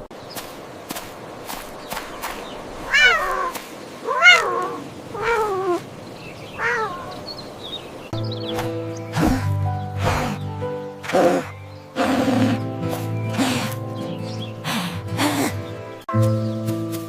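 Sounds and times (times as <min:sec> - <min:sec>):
cat meowing: 0:02.9 - 0:05.8, 0:06.5 - 0:07.2.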